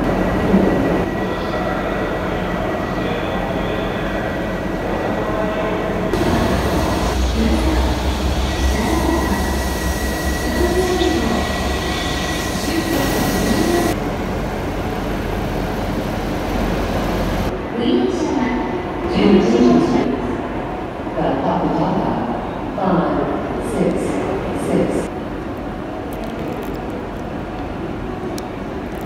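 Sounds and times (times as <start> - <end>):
train rumble and hiss: 0.0 - 29.0.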